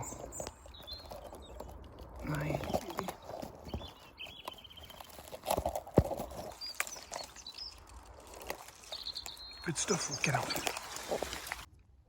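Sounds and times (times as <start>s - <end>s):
bird trill: 0.0s - 11.6s
bird chirps: 0.0s - 11.7s
twigs and leaves crackling: 0.0s - 11.7s.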